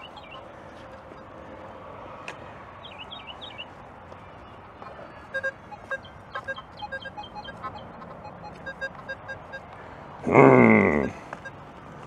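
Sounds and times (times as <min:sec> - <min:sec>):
bird chirps: 0:00.0 - 0:00.5, 0:02.8 - 0:03.8, 0:05.1 - 0:09.7
short repeated pitched tones: 0:00.0 - 0:01.4, 0:05.3 - 0:11.6.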